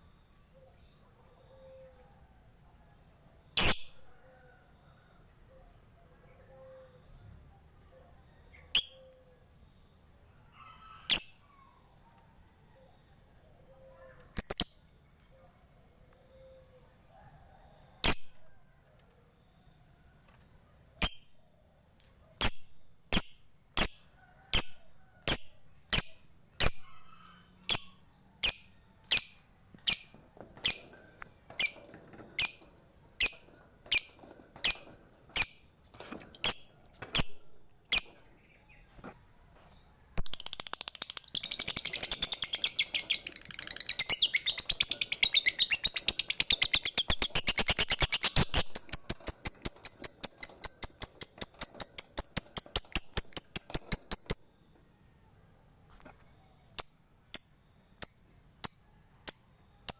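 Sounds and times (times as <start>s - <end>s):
bird chattering trill: 40.2s - 54.4s
bird ticking calls: 40.2s - 54.5s.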